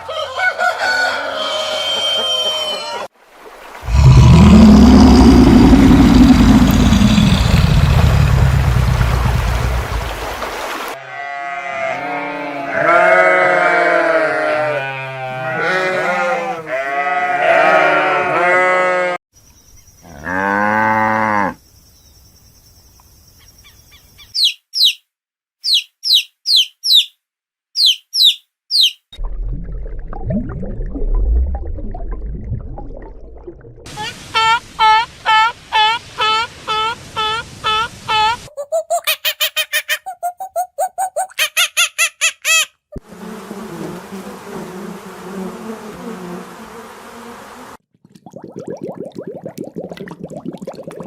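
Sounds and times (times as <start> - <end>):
flying insect buzzing: 3.8 - 10.1, 43.0 - 47.8
low sound: 3.9 - 10.5
songbird chirping: 19.4 - 20.2, 21.6 - 27.2, 27.8 - 29.1.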